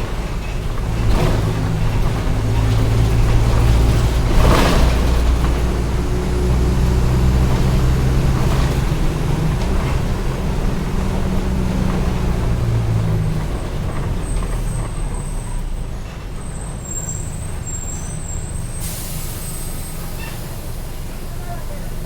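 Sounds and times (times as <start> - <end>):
bus engine running: 0.0 - 22.0.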